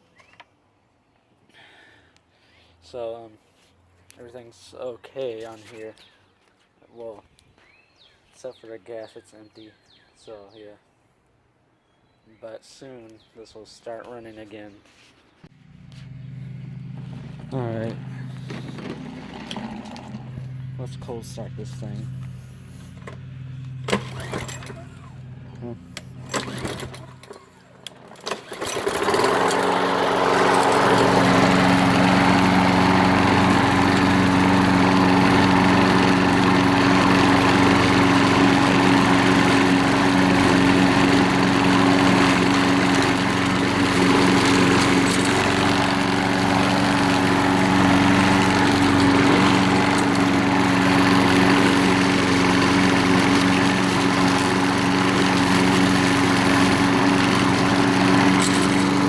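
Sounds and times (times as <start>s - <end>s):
lawn mower engine starting and running: 15.5s - 59.0s.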